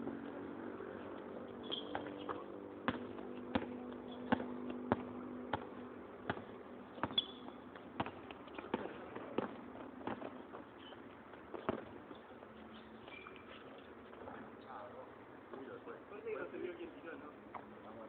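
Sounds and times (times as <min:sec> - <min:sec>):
basketball bouncing on hard court: 0:01.6 - 0:10.6, 0:11.5 - 0:12.0.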